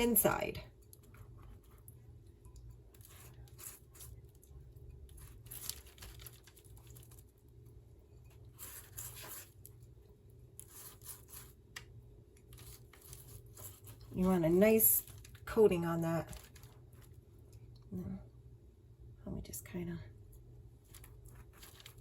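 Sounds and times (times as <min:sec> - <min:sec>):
butter scraping on crisp bread: 0:02.9 - 0:07.2, 0:08.3 - 0:09.9, 0:10.5 - 0:11.7, 0:12.4 - 0:15.4, 0:20.9 - 0:22.0.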